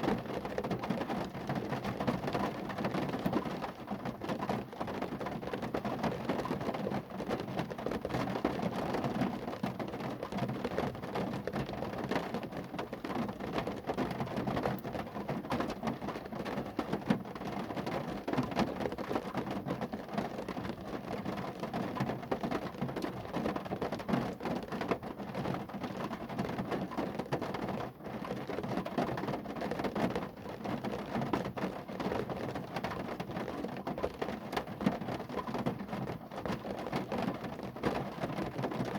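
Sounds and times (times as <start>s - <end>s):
rain falling on a car: 0.0s - 38.9s.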